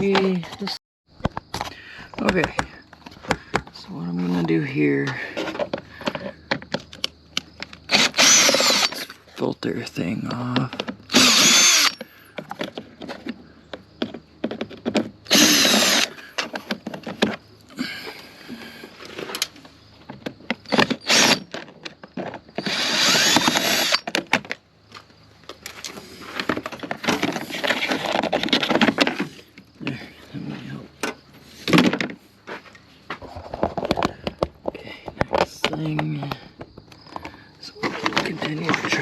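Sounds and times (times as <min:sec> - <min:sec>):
plastic parts clicking and rattling: 0:05.3 - 0:09.2, 0:10.3 - 0:17.4, 0:25.5 - 0:29.7
cordless drill motor whine: 0:07.9 - 0:09.1, 0:11.1 - 0:12.2, 0:15.3 - 0:16.4, 0:20.7 - 0:21.5, 0:22.6 - 0:24.1.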